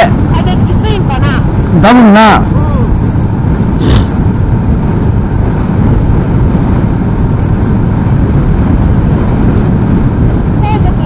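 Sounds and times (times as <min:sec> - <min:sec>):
wind buffeting microphone: 0:00.0 - 0:11.0
short hiss: 0:03.8 - 0:04.1.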